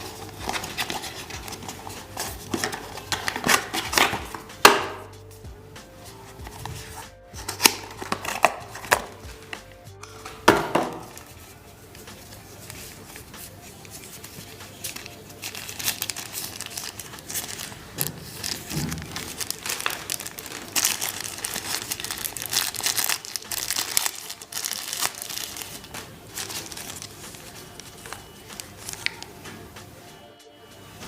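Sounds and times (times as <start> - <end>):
packaging crinkling and tearing: 0.0 - 4.4, 7.4 - 9.2, 12.5 - 29.3.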